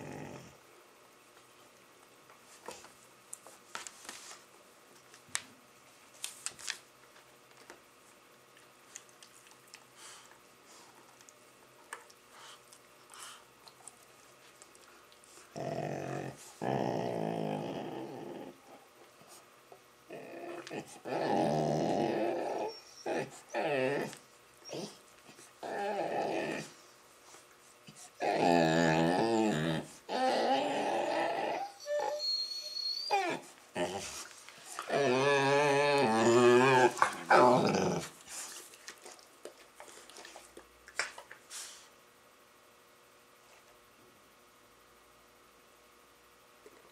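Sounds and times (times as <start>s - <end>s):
dog play growling: 0.0s - 0.6s, 15.5s - 18.8s, 20.1s - 24.8s, 25.6s - 26.8s, 28.2s - 31.7s, 33.1s - 38.5s.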